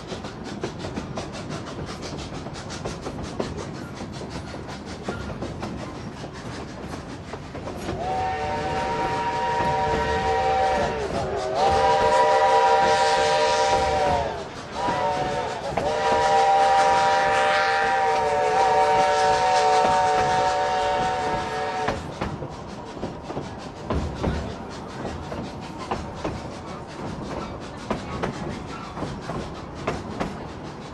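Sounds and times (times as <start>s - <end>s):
train working upgrade: 0.0s - 30.9s
steam locomotive chime whistle: 8.0s - 22.0s.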